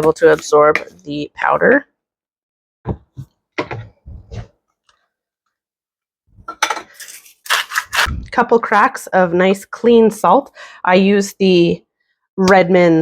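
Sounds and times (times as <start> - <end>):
spoon scraping in mixing bowl: 6.6 - 8.1
salt grinder grinding: 6.9 - 8.1.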